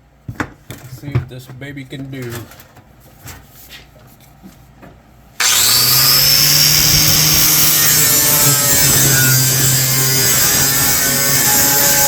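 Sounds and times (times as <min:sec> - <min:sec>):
angle grinder running: 0:05.4 - 0:12.0
grinder disc rasping on surface: 0:05.4 - 0:12.0.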